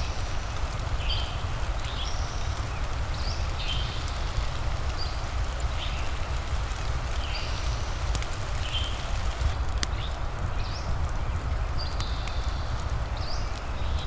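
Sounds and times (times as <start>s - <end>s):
steady rain hiss: 0.0s - 14.0s
sharp clicks: 3.7s - 11.2s.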